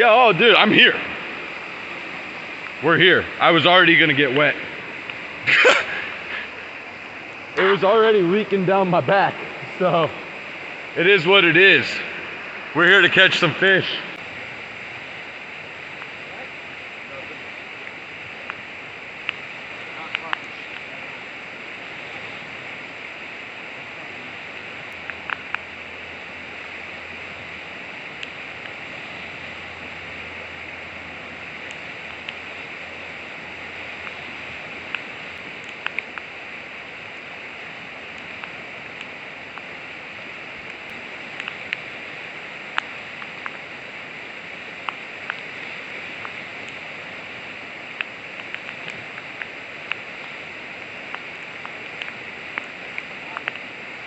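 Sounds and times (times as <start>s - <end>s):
river water rushing: 0.0s - 54.0s
sharp ticks: 24.6s - 25.7s, 34.9s - 36.3s, 40.6s - 41.9s, 44.8s - 45.6s.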